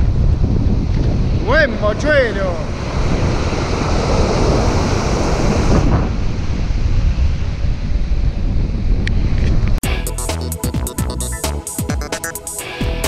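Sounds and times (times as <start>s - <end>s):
wind buffeting microphone: 0.0s - 9.8s
surf washing on beach: 1.1s - 8.1s.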